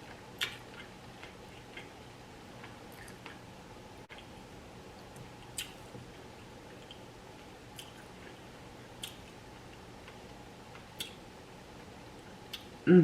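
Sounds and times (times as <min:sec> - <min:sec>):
person chewing food: 0:00.0 - 0:03.5, 0:04.1 - 0:11.2
faint steady hum: 0:00.0 - 0:13.0
wet mouth smacks: 0:05.6 - 0:05.8.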